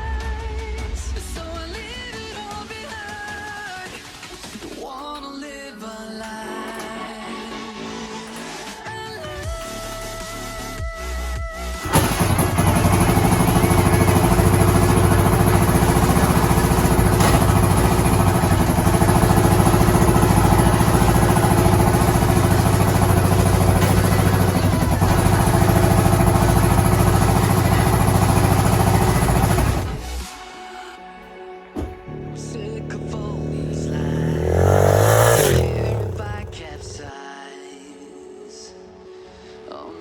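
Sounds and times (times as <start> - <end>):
motorcycle engine idling: 11.8 - 30.3, 31.8 - 37.1.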